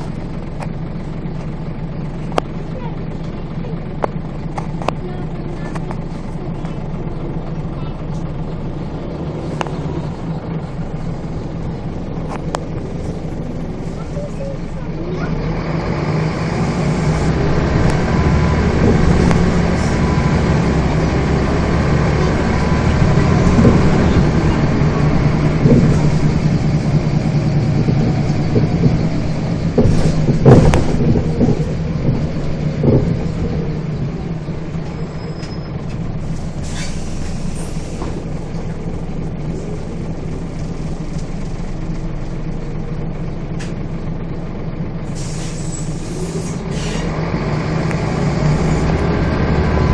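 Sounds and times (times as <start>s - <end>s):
bus diesel engine running: 0.0s - 49.9s
sharp knocks and rattles: 22.7s - 34.9s.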